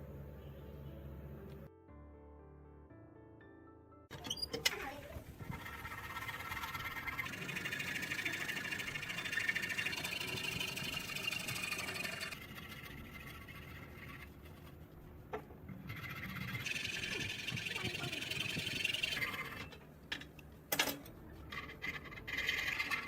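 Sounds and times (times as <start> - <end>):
scraping rust off steel: 21.0 - 23.0.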